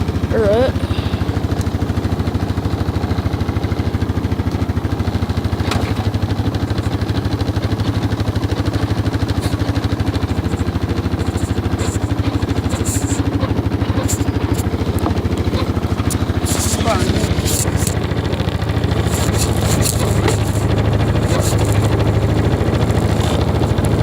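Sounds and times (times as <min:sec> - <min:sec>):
atv engine idling: 0:00.0 - 0:24.0.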